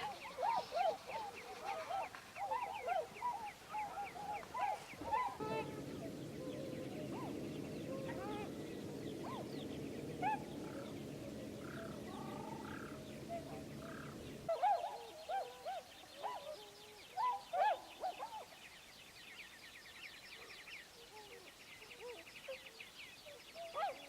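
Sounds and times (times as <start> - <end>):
birds calling: 0.0 - 18.6
steady low rumble: 4.4 - 14.5.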